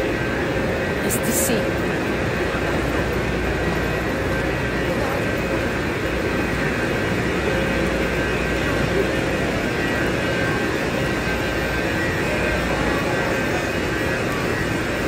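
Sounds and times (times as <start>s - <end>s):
electric train drone: 0.0s - 15.0s
thin steady tones: 0.0s - 15.0s
people's voices: 1.0s - 1.9s.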